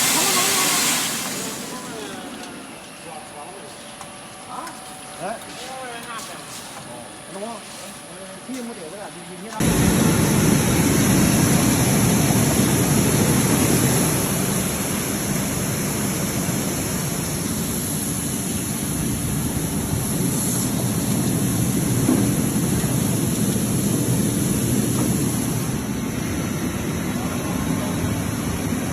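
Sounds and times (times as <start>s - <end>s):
air and water churning: 0.0s - 3.0s.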